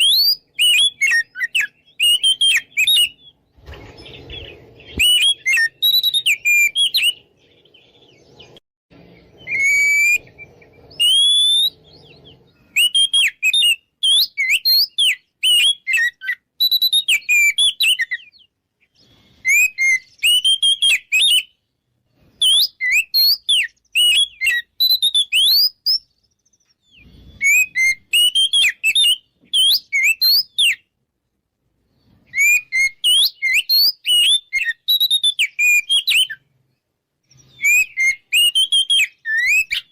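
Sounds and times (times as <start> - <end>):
magpie-robin singing: 0.0 - 31.0, 31.9 - 39.9.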